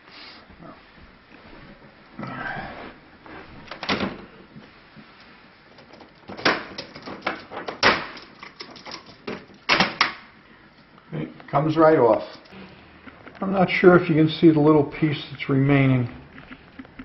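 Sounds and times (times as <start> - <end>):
fastenings snapping with sharp cracks: 6.2 - 10.3.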